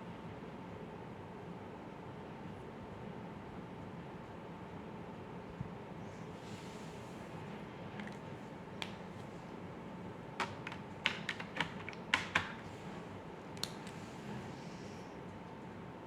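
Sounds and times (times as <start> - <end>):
sharp clicks and taps: 10.4 - 12.6.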